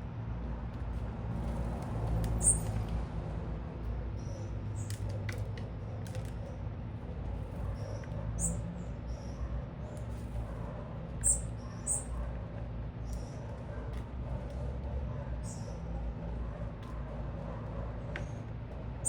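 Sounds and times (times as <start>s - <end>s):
low city rumble: 0.0s - 19.0s
small birds chirping: 2.3s - 2.8s, 7.5s - 10.5s, 11.1s - 12.2s, 13.0s - 13.5s, 15.4s - 15.8s.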